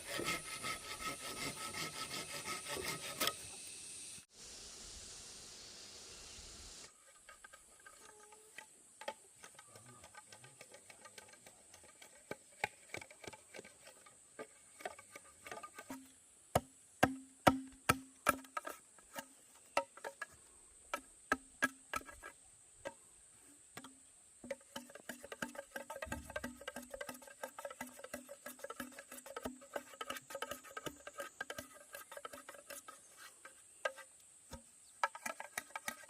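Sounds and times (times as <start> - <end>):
faint high hiss: 2.8 - 10.0
tools knocking on bamboo: 9.0 - 11.4, 14.8 - 23.0, 23.8 - 32.7, 33.8 - 36.0.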